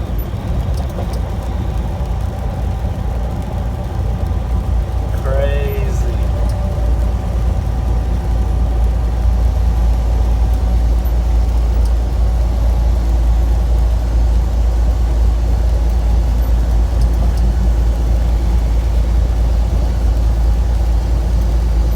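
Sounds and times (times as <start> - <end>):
truck engine idling: 0.0 - 21.9.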